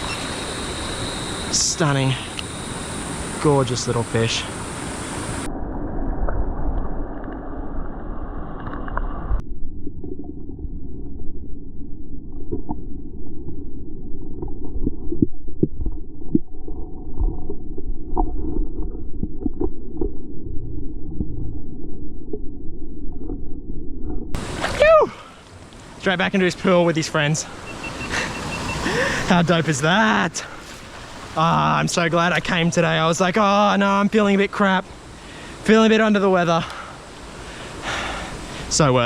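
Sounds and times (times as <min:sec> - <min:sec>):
underwater rumbling and gurgling: 0:04.5 - 0:24.6
underwater knocks and clicks: 0:14.3 - 0:20.3.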